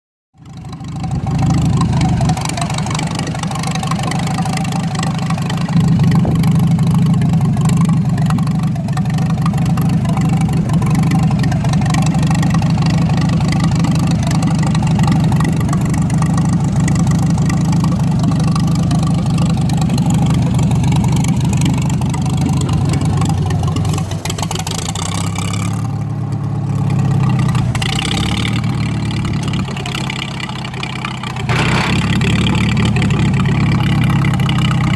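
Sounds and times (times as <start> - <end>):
large engine idling: 0.4 - 34.9.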